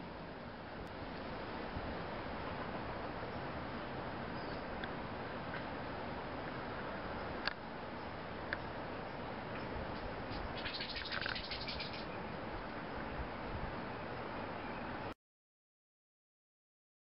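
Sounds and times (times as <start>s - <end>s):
outdoor background hiss: 0.0s - 15.2s
small bird chirping: 4.3s - 4.7s, 8.0s - 12.2s.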